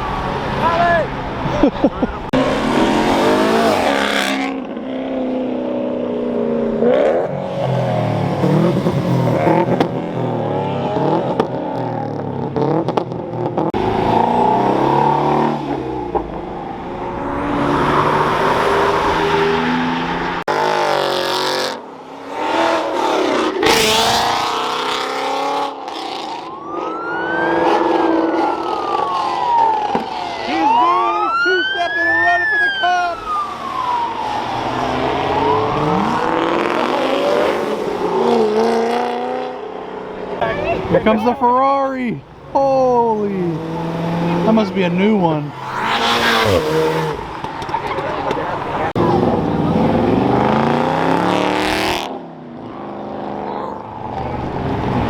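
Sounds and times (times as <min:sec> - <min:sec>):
cars accelerating and revving: 0:00.0 - 0:55.0
police siren wailing: 0:13.8 - 0:20.5, 0:25.8 - 0:38.6, 0:45.5 - 0:47.2.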